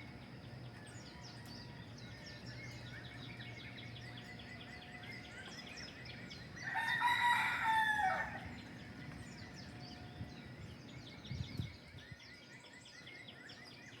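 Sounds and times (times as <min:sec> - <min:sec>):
small birds chirping: 0:00.0 - 0:14.0
rooster crowing: 0:06.6 - 0:08.6.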